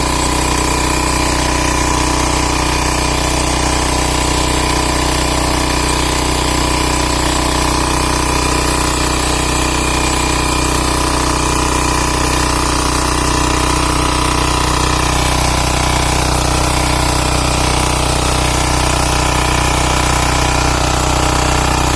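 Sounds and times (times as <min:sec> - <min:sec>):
power tiller engine running: 0:00.0 - 0:21.9.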